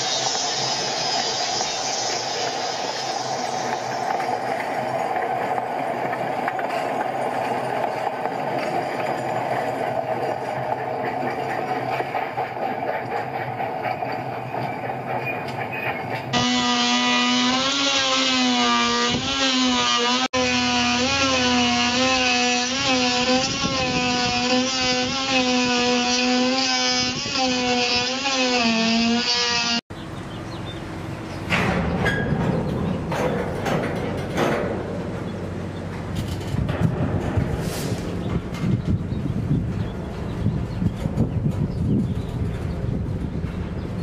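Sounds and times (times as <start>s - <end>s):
rough work noise and knocks: 2.5s - 29.8s, 31.3s - 43.6s
power tool whining: 16.3s - 29.8s.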